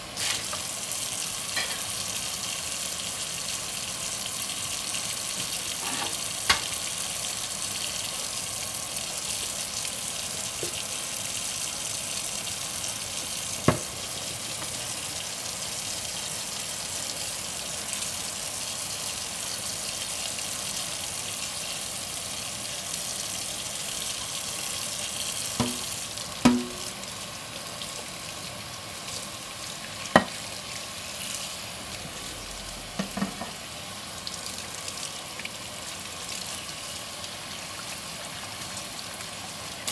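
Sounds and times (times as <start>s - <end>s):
tap water running: 0.0s - 39.9s
dishes clinking together: 1.6s - 1.9s, 5.8s - 6.8s, 25.6s - 27.0s, 33.0s - 33.6s.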